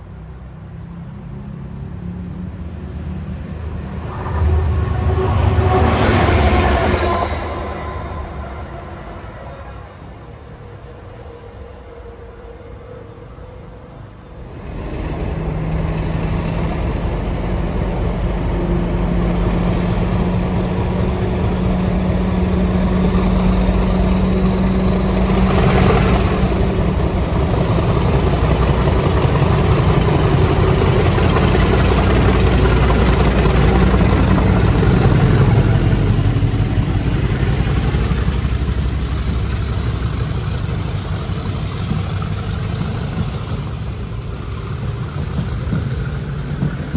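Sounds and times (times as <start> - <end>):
train passing at speed: 0.0 - 46.9
thin high whine: 2.8 - 11.2.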